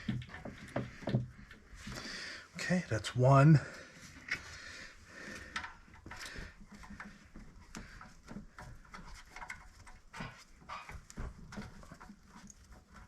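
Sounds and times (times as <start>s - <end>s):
clicks and knocks of hand tools: 5.3s - 13.0s.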